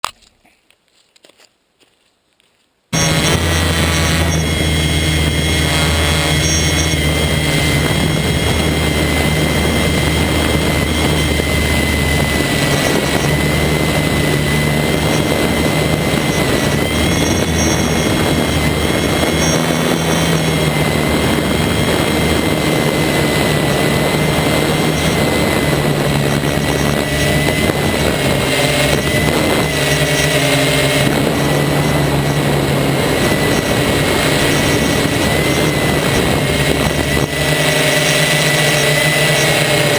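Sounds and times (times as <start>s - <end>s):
quadcopter motors buzzing: 3.0s - 39.9s.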